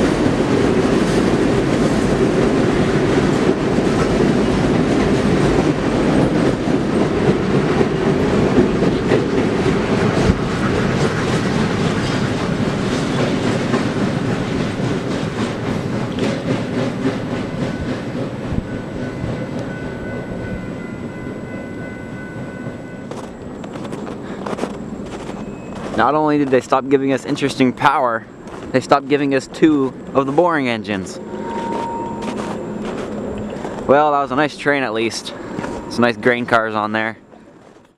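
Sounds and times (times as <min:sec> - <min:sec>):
freight train rumbling past: 0:00.0 - 0:37.8
wheels clicking over rail joints: 0:00.0 - 0:37.9.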